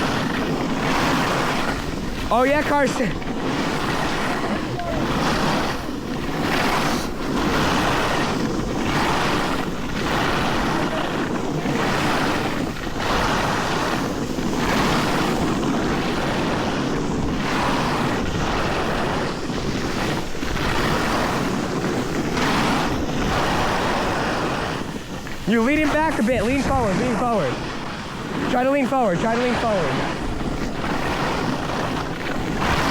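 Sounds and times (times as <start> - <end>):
skis scraping on packed snow: 0.0 - 32.9
wind rumbling on microphone: 0.0 - 32.9.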